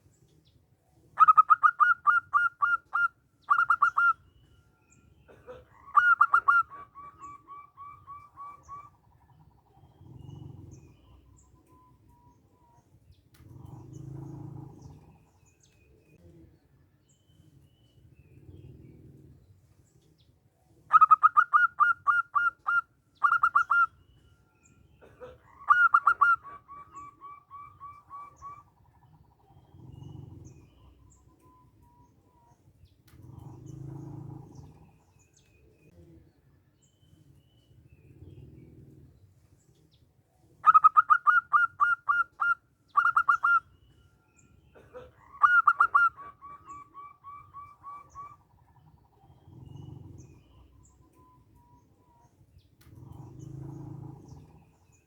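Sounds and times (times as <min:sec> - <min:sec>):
dove cooing: 0:01.2 - 0:04.3, 0:05.2 - 0:16.5, 0:20.8 - 0:36.3, 0:37.1 - 0:55.0.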